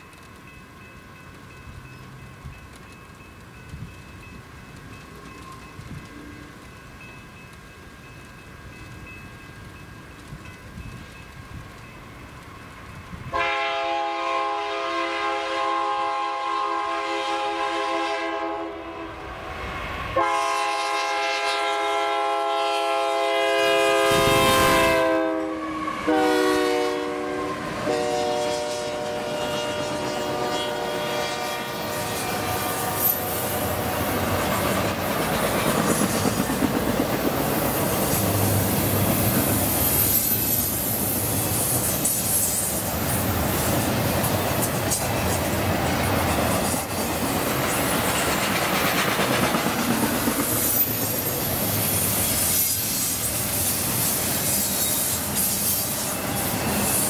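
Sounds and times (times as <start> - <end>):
train rumble and wheel clatter: 0.0 - 57.0
diesel locomotive horn blasts: 13.3 - 19.5, 20.2 - 33.7
thin wheel squeal: 50.6 - 57.0.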